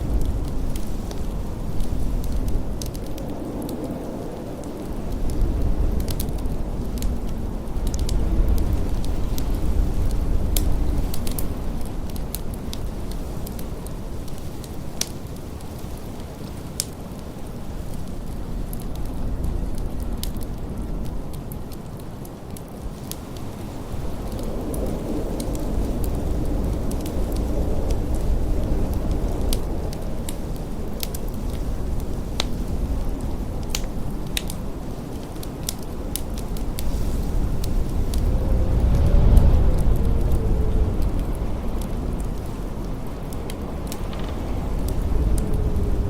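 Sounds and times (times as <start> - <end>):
blizzard wind: 0.0 - 46.0
wood fire crackling: 0.0 - 46.0
sharp pops of fire: 42.9 - 46.0.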